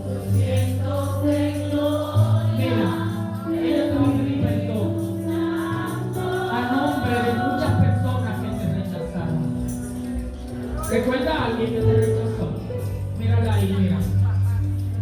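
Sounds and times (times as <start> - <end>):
group of voices singing: 0.0 - 8.6
bass: 0.0 - 15.0
keyboard chords: 0.0 - 15.0.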